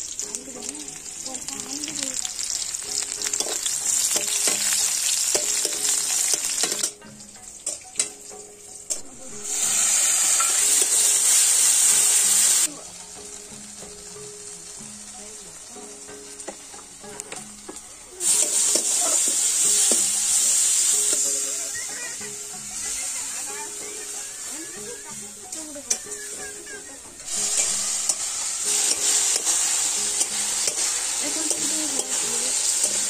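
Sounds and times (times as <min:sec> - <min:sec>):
hot oil sizzling in a wok: 0:00.0 - 0:33.0
soft background music: 0:00.0 - 0:33.0
metal spatula scraping: 0:25.8 - 0:33.0.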